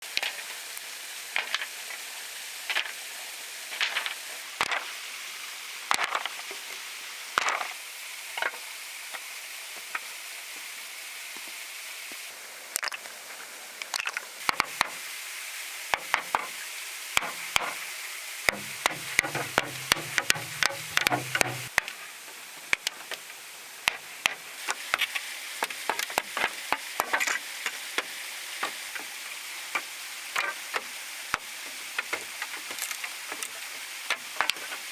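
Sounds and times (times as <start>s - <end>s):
steady high hiss: 0.0s - 12.7s, 14.4s - 34.9s
sharp taps and knocks: 14.5s - 15.0s, 16.0s - 16.5s, 17.2s - 17.8s, 18.5s - 21.9s, 23.9s - 27.2s.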